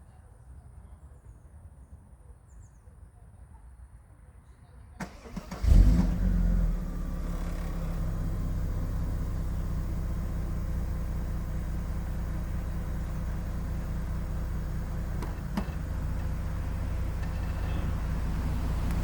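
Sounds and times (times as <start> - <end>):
car engine starting and idling: 5.0 - 19.0.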